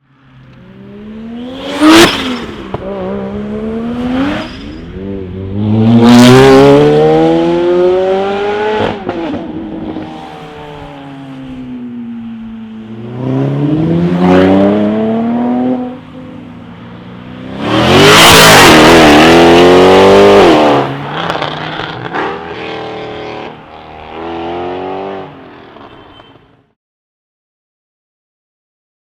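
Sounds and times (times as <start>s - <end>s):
car engine accelerating: 17.5s - 25.2s.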